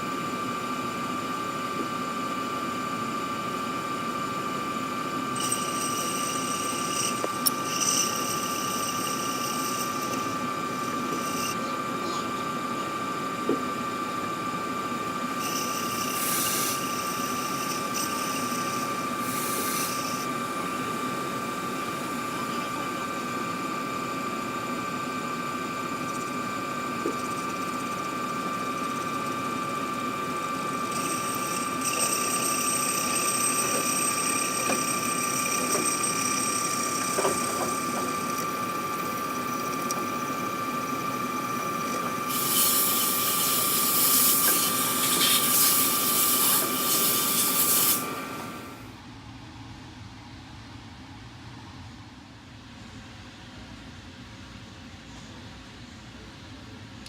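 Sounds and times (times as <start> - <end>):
machine tool whine: 0.0 - 48.9
hissing cutting noise: 15.4 - 20.2.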